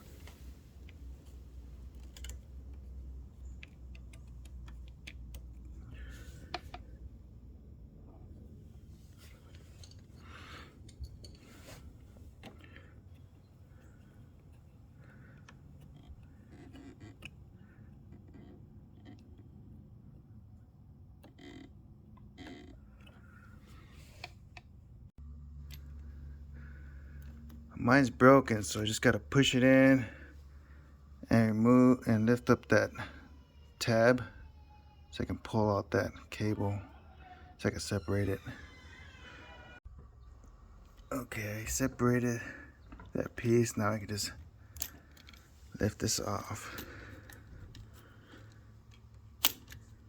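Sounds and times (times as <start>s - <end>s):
low steady hum: 22.0s - 38.6s.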